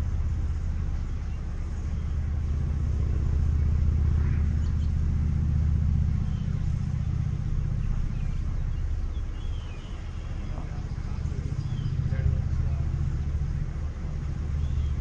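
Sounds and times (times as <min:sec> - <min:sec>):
vehicle engine idling: 0:00.0 - 0:15.0
faint bird chirps: 0:06.2 - 0:13.4.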